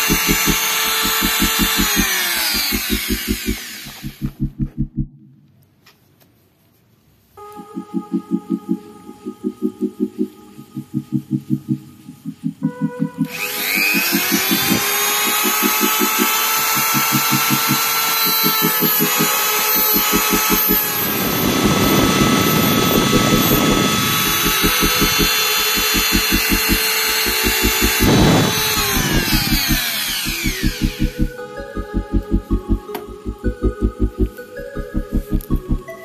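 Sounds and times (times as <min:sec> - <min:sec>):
electric power tool whining: 0:00.0 - 0:05.1, 0:13.1 - 0:35.8
pulsing music beat: 0:00.0 - 0:05.2, 0:07.4 - 0:36.0.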